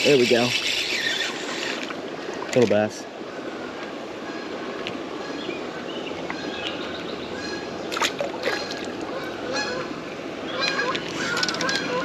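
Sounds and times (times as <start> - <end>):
flowing creek water: 0.0 - 12.0
small birds chirping: 5.2 - 9.8
geese honking: 8.6 - 12.0.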